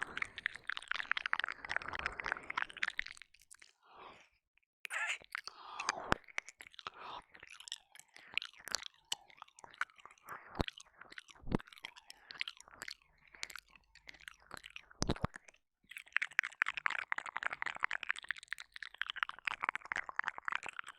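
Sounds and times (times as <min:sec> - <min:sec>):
wet mouth licking sounds: 0:00.0 - 0:03.7, 0:04.9 - 0:15.3.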